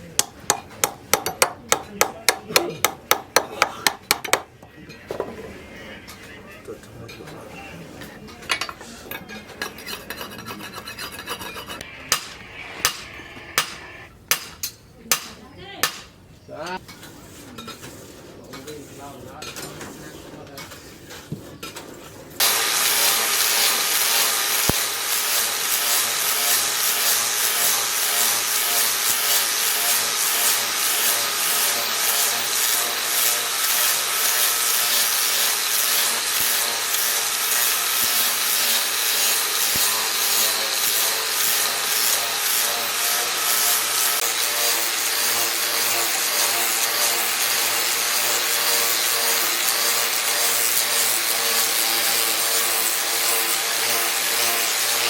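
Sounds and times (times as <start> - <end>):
power grinder grinding: 9.8 - 14.1, 22.4 - 55.0.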